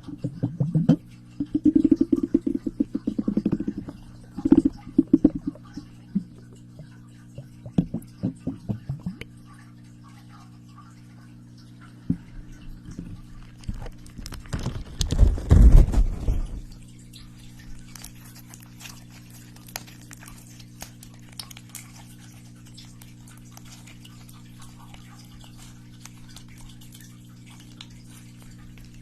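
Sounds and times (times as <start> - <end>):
low electrical hum: 0.0 - 29.0
rustling thump: 14.5 - 16.6.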